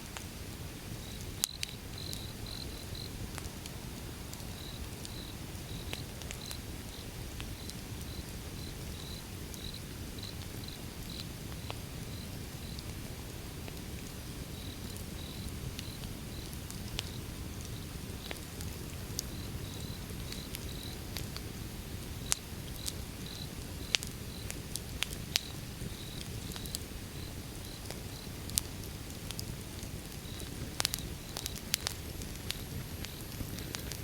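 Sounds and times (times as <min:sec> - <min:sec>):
wood fire crackling: 0:00.0 - 0:34.0
cricket chirping: 0:01.0 - 0:03.2, 0:04.5 - 0:12.8, 0:14.6 - 0:16.5, 0:19.3 - 0:21.0, 0:22.2 - 0:24.5, 0:25.4 - 0:28.4, 0:30.2 - 0:33.7.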